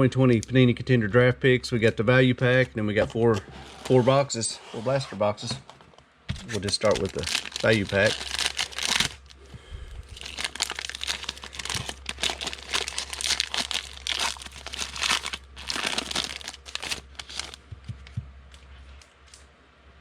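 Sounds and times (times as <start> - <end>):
plastic wrapping tearing and crinkling: 6.3 - 9.4, 10.0 - 17.6.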